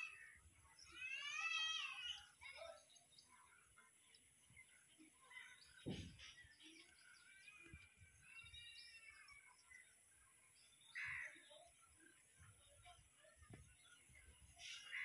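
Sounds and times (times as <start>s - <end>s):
faint bird chirps: 0.0s - 15.0s
low thump: 5.8s - 6.2s.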